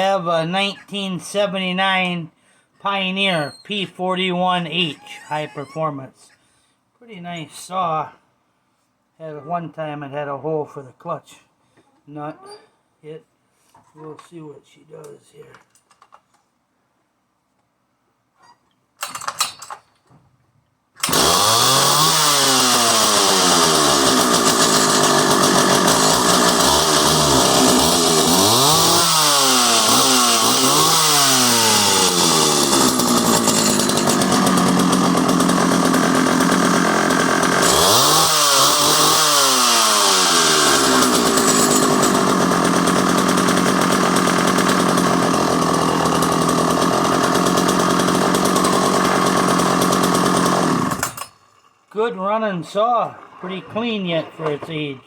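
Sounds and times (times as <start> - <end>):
chainsaw revving: 21.0 - 51.4.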